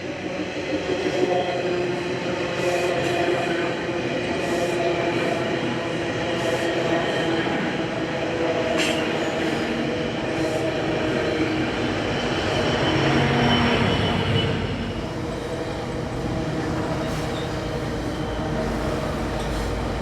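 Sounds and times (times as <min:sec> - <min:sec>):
locomotive engine humming: 0:10.1 - 0:20.0
rail rumble: 0:11.8 - 0:20.0.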